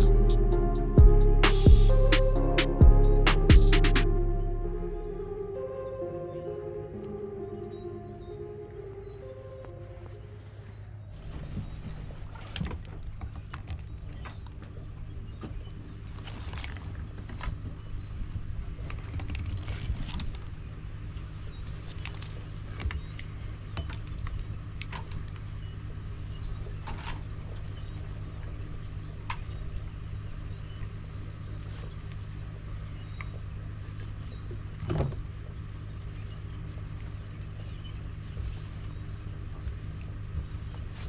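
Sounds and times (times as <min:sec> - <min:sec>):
brief high whine: 0:00.0 - 0:10.8.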